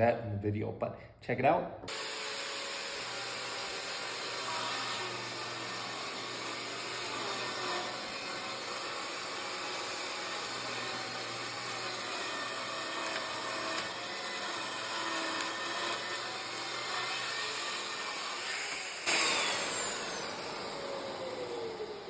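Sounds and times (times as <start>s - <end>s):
track saw cutting: 1.9s - 22.0s.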